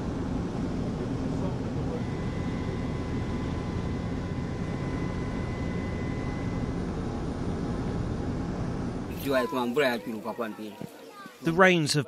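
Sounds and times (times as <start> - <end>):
low rumble of noise: 0.0 - 9.3
faint thin tone: 1.9 - 6.9.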